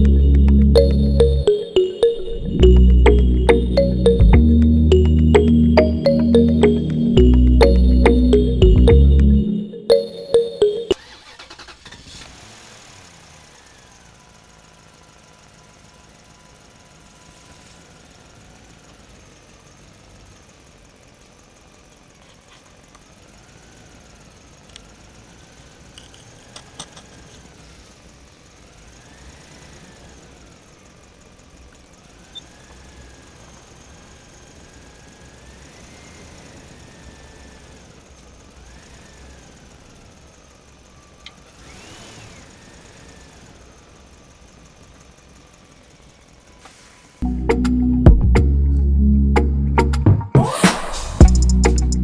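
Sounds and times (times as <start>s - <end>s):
small electric motor whining: 31.6s - 44.2s.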